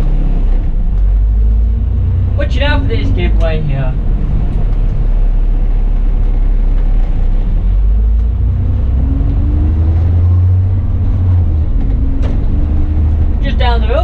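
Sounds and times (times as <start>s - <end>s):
diesel bus engine rumbling: 0.0s - 14.0s.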